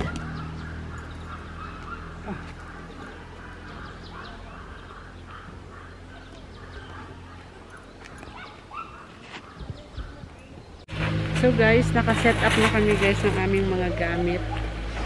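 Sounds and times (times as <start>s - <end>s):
low steady hum: 10.9s - 15.0s.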